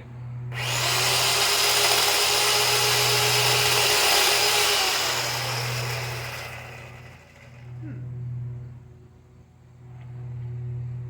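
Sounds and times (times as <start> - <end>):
electric chainsaw cutting wood: 0.5 - 7.8.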